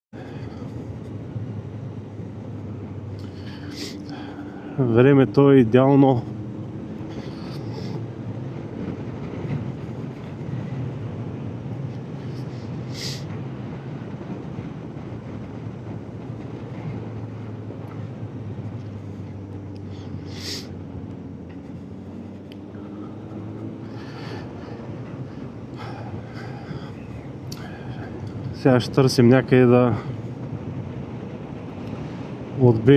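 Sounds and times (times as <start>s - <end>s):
wind and road noise: 0.1s - 32.9s
motorcycle engine cruising: 1.2s - 27.5s.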